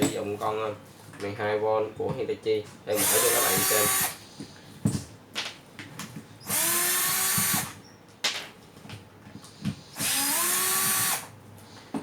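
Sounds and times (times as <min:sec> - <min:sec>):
cordless drill running: 0:03.0 - 0:04.2, 0:06.4 - 0:07.8, 0:10.0 - 0:11.3.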